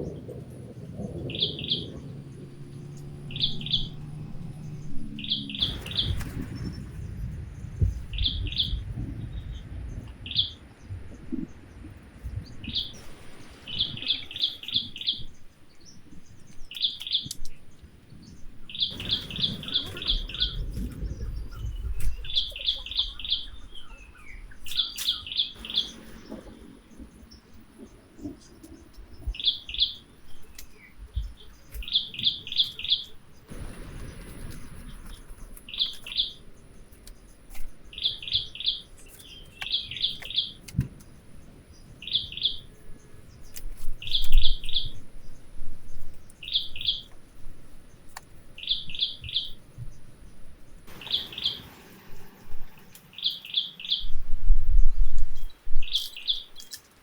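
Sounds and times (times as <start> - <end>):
low rumbling bursts: 0.0 - 16.5, 18.0 - 24.6, 25.3 - 37.1
bird chirping: 0.0 - 56.9.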